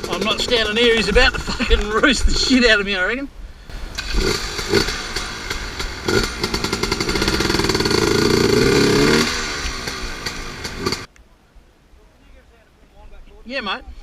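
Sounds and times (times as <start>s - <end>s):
dirt bike engine revving: 0.0s - 1.6s, 3.7s - 11.1s.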